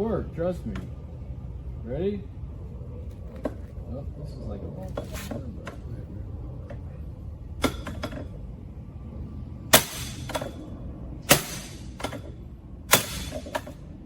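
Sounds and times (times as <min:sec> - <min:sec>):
hammer striking metal: 0:09.7 - 0:10.6, 0:11.3 - 0:12.3, 0:12.9 - 0:13.8.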